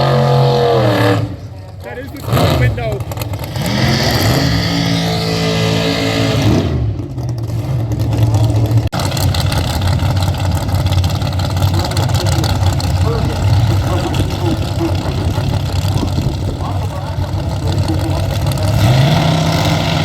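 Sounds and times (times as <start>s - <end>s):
drag racing car engine revving: 0.0s - 20.0s.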